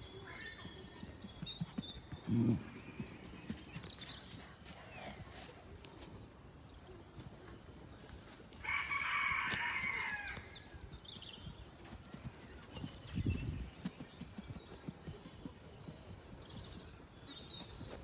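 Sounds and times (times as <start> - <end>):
rooster crowing: 8.6 - 10.5.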